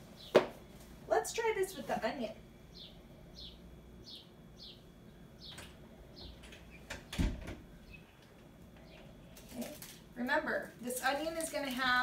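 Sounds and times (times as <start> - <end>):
bird chirping: 2.7 - 8.2.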